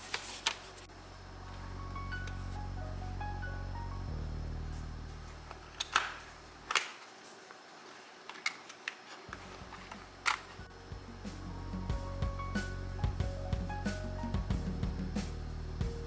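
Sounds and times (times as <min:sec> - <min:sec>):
low background music: 0:01.0 - 0:06.8, 0:09.3 - 0:16.0.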